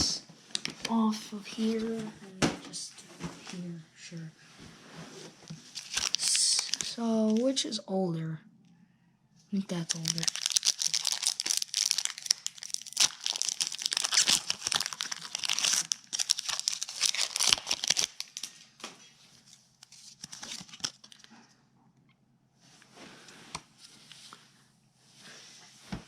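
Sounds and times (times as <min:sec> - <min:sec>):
foil wrapper tearing and crinkling: 0:05.7 - 0:07.4, 0:09.7 - 0:18.6, 0:19.8 - 0:21.3.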